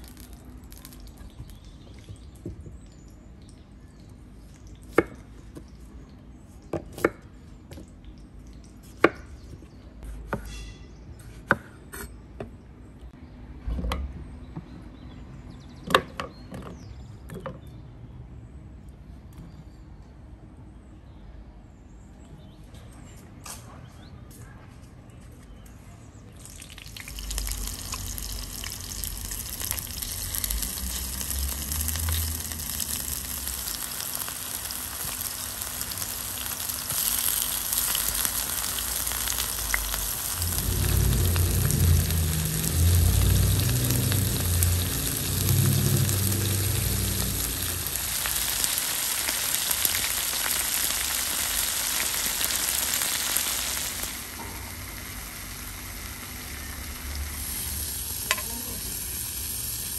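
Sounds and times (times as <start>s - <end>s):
food sizzling in oil: 26.4s - 59.9s
low rumble: 38.6s - 48.9s.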